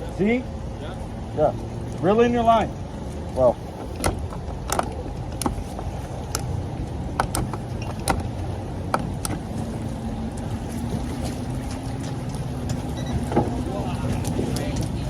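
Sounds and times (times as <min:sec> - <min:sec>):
boat motor idling: 0:00.0 - 0:15.0
sharp knocks and clicks: 0:03.8 - 0:06.5, 0:07.1 - 0:09.4.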